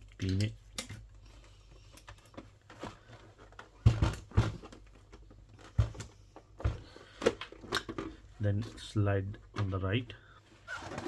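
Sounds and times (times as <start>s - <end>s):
hard plastic parts knocking: 3.5s - 8.2s.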